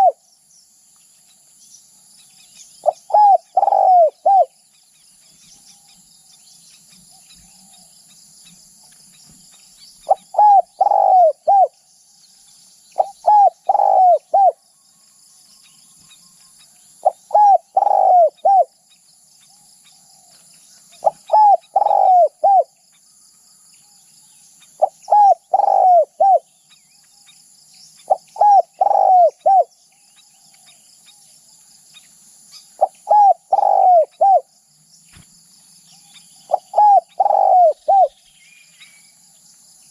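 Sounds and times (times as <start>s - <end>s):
dove cooing: 0.0s - 0.2s, 2.8s - 4.6s, 10.0s - 11.8s, 13.0s - 14.6s, 17.0s - 18.8s, 20.2s - 22.8s, 24.8s - 26.5s, 28.0s - 29.7s, 32.8s - 34.5s, 36.5s - 38.2s
high insect drone: 0.0s - 39.9s.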